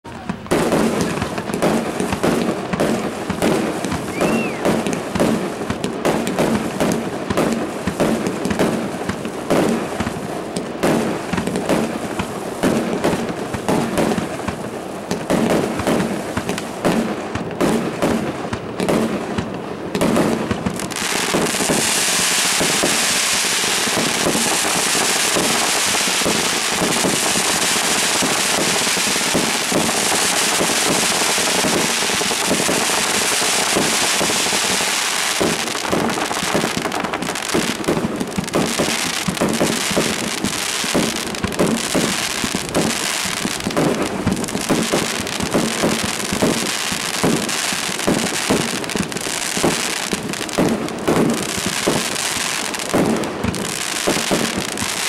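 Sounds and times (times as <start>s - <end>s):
fireworks bangs and pops: 0.0s - 55.0s
firework whistle: 3.4s - 5.4s.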